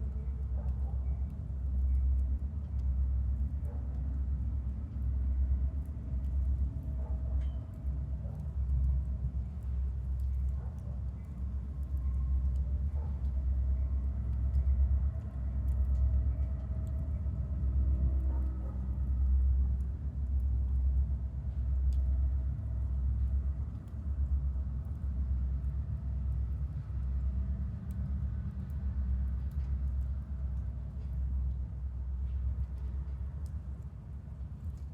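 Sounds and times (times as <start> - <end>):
wood fire crackling: 22.8 - 34.9.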